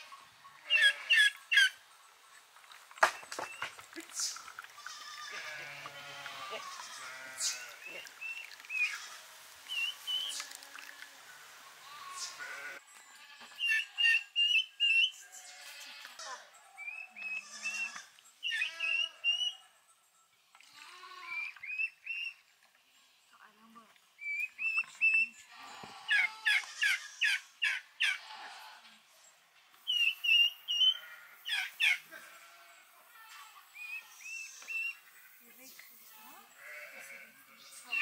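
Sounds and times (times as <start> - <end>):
songbird chirping: 0.0 - 26.6, 27.2 - 38.0.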